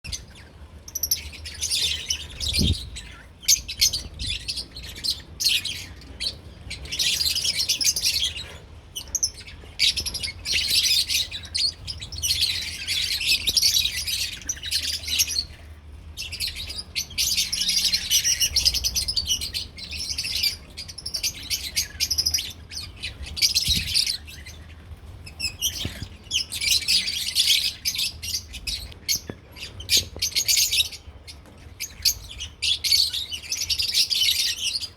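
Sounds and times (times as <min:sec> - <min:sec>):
lovebirds chirping: 0:00.0 - 0:34.9.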